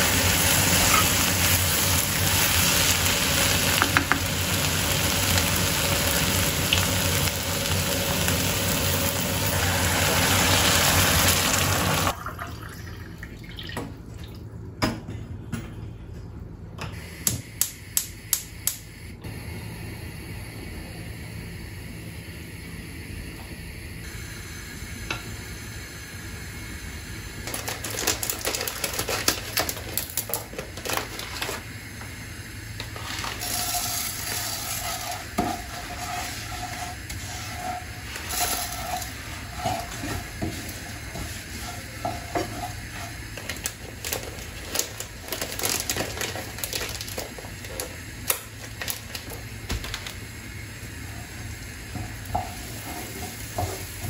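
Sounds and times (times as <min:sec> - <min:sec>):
food sizzling in a frying pan: 0:00.0 - 0:12.2, 0:32.8 - 0:54.0
utensil scraping a pan: 0:33.0 - 0:43.5.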